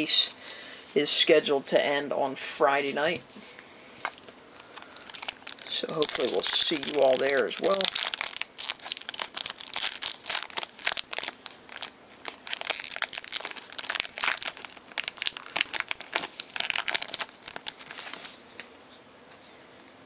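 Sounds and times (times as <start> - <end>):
packaging being torn and crinkled: 4.0 - 18.4.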